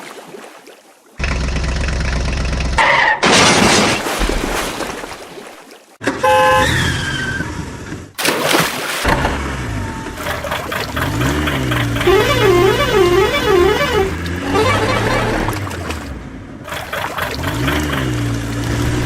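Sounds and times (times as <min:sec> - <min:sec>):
horn toots: 0:06.2 - 0:07.1, 0:09.4 - 0:15.8
low engine hum: 0:09.1 - 0:19.0.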